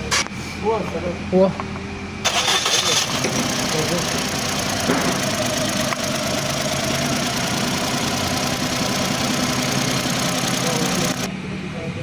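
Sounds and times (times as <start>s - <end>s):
car engine idling with misfire: 2.2s - 11.3s.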